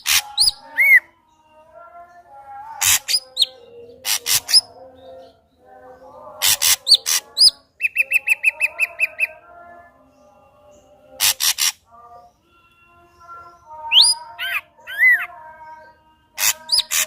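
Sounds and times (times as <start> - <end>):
bird singing harsh notes and whistles: 0.0 - 1.6, 2.8 - 4.8, 6.4 - 9.5, 11.1 - 17.0.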